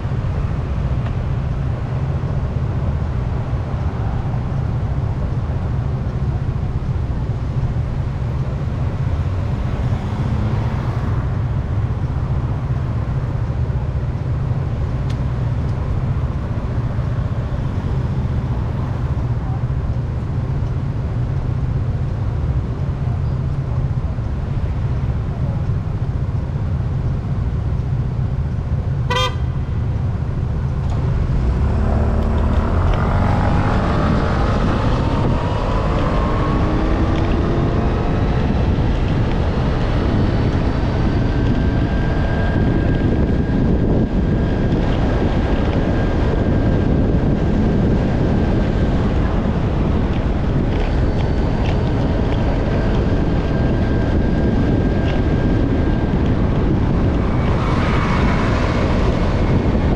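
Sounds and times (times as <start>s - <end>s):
wind rumble on microphone: 0.0s - 59.9s
vehicle engine whining: 26.9s - 59.9s
short horn beep: 29.1s - 29.5s.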